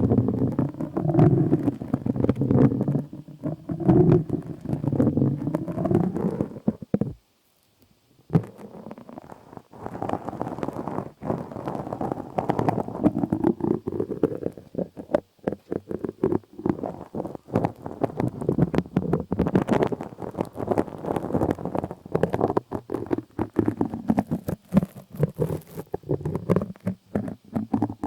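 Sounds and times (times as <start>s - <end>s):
close rubbing and scratching: 0.0s - 7.7s, 8.3s - 28.0s.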